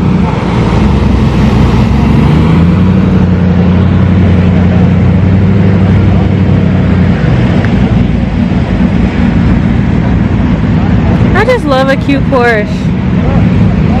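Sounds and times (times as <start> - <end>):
car engine idling: 0.0 - 14.0
outdoor noise: 0.0 - 14.0
people talking: 10.8 - 14.0.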